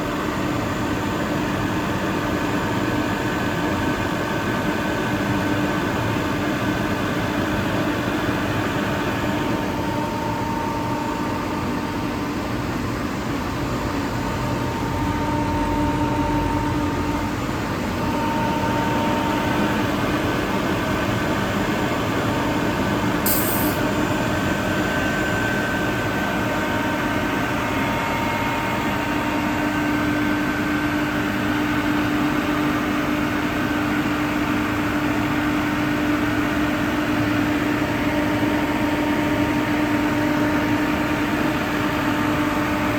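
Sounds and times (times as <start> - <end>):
air compressor running: 23.2 - 24.1
short high hiss: 23.3 - 23.8.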